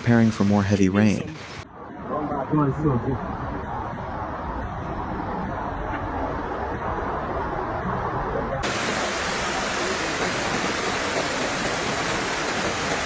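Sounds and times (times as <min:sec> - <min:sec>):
rushing floodwater: 0:00.0 - 0:02.2, 0:08.6 - 0:13.0.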